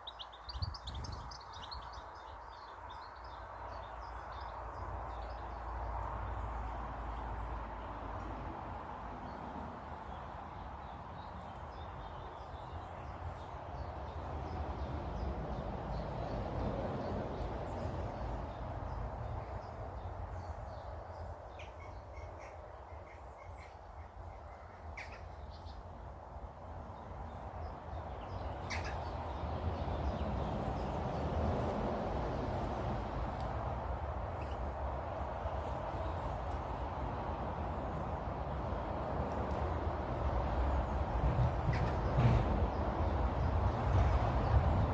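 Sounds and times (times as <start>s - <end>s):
birds chirping: 0.0s - 7.5s, 9.2s - 26.0s, 26.8s - 32.8s
sharp bird calls: 21.5s - 25.8s, 28.2s - 30.4s.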